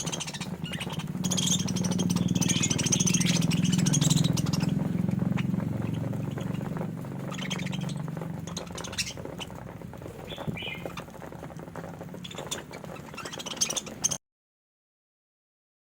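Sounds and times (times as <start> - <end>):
low hum: 0.0 - 12.2
budgerigars chirping: 0.0 - 14.2.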